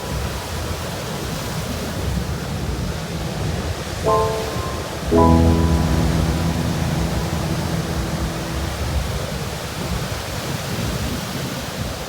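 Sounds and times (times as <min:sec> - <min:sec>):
held musical chord: 0:04.1 - 0:09.6.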